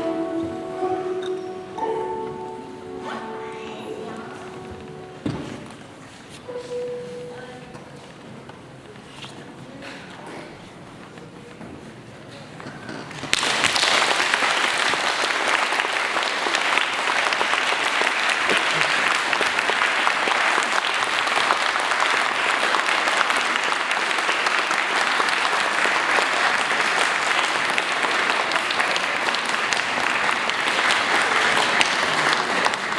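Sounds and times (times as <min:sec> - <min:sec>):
audience applauding: 0:13.1 - 0:32.9.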